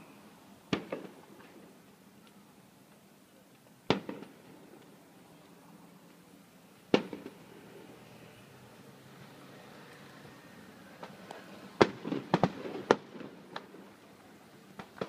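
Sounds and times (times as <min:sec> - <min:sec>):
firework bangs: 0:00.7 - 0:01.7, 0:03.9 - 0:04.8, 0:06.9 - 0:07.6, 0:11.0 - 0:14.0.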